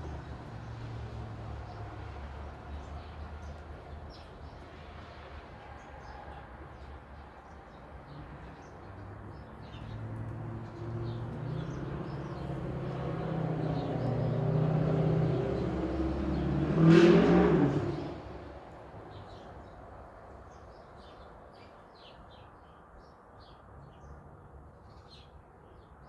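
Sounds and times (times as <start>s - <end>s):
small birds chirping: 6.8s - 16.6s
vehicle driving past: 9.8s - 18.7s.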